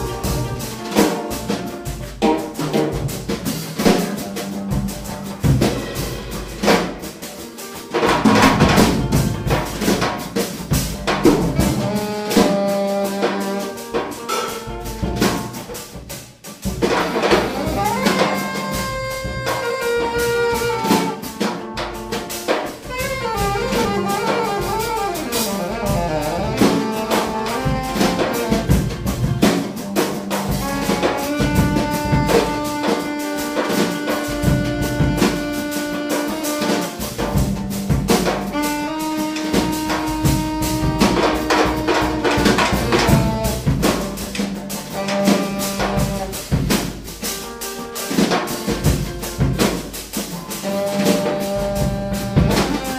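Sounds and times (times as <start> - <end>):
saxophone playing runs: 0.0 - 2.4, 11.2 - 15.8, 17.1 - 29.4, 30.4 - 46.6, 50.3 - 52.9
busy jazz drumming: 0.0 - 52.9.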